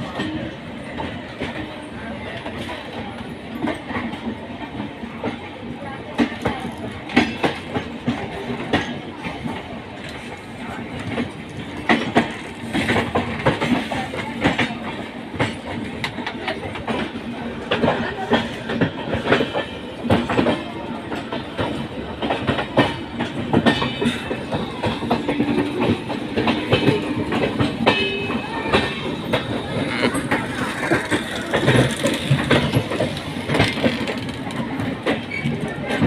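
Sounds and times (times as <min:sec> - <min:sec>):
train running noise: 0:00.0 - 0:36.0
wheels clattering over rail joints: 0:11.0 - 0:36.0.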